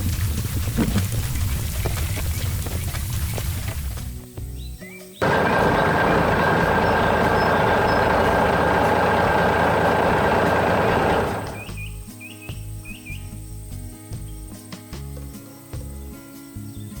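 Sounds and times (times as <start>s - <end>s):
heavy machinery running: 5.2s - 11.8s.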